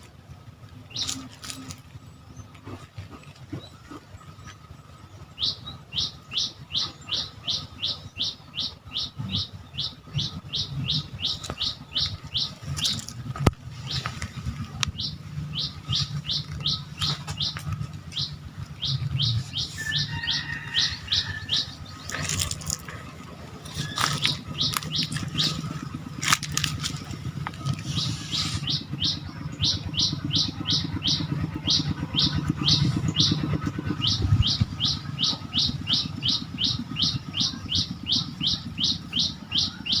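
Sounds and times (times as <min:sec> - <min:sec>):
low rumble: 0:00.4 - 0:40.0
bird calling high notes: 0:14.9 - 0:40.0
sharp clicks: 0:20.8 - 0:28.8.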